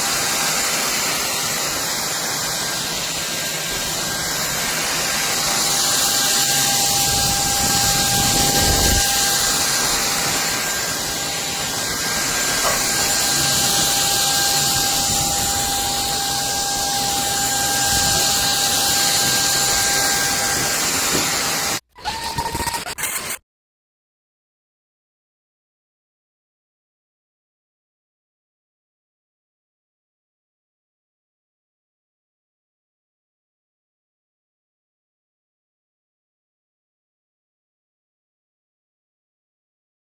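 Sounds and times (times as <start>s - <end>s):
vacuum cleaner running: 0.0s - 23.3s.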